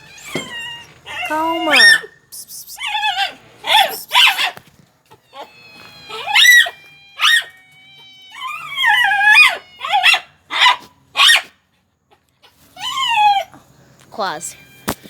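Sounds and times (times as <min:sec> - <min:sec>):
pet animal wavering cries: 0:00.0 - 0:11.3, 0:12.7 - 0:13.5, 0:14.4 - 0:14.9
person hissing to coax a cat: 0:02.3 - 0:02.9.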